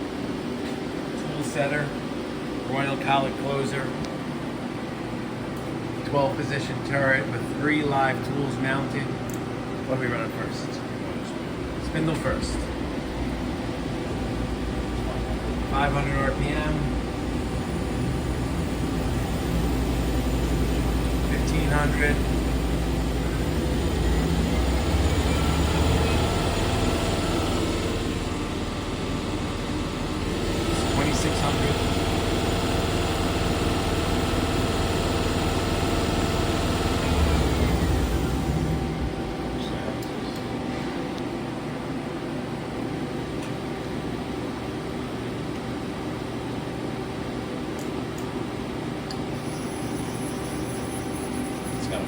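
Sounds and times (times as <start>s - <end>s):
machine spindle whirring: 11.2s - 40.9s, 49.1s - 52.0s.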